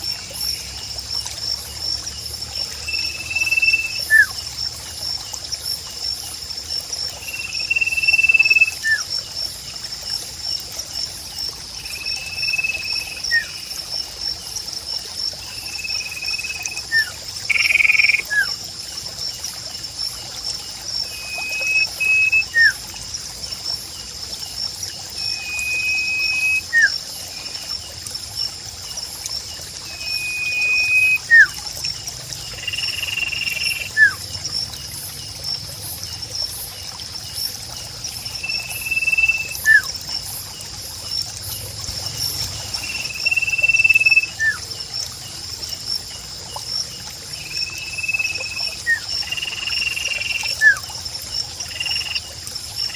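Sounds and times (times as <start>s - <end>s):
high insect trill: 0.0s - 52.9s
trickling water: 0.0s - 52.9s
bird whistling call: 21.1s - 22.8s, 25.2s - 26.9s, 30.0s - 31.6s, 43.1s - 44.6s.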